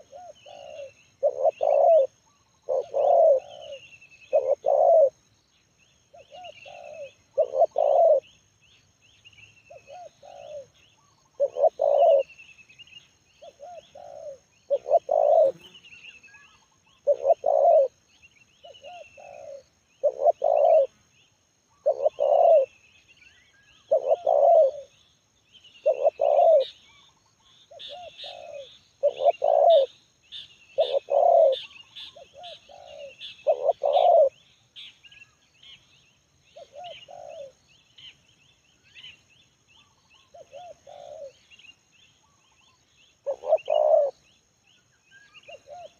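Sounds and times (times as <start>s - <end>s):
dove cooing: 0.0s - 5.2s, 6.1s - 8.3s, 9.7s - 12.4s, 13.4s - 15.7s, 16.3s - 18.0s, 18.6s - 20.9s, 21.7s - 22.8s, 23.8s - 24.9s, 25.8s - 26.8s, 27.7s - 29.9s, 30.8s - 34.4s, 36.5s - 37.6s, 39.9s - 41.5s, 42.4s - 44.2s, 45.3s - 45.9s
small birds chirping: 0.0s - 45.9s.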